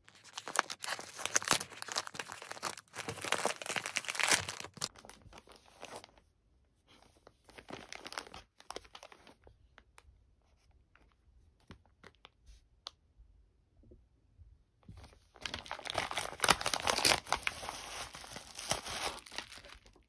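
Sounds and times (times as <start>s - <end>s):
packaging crinkling and rustling: 0.0s - 6.2s, 7.5s - 9.5s, 15.0s - 20.0s.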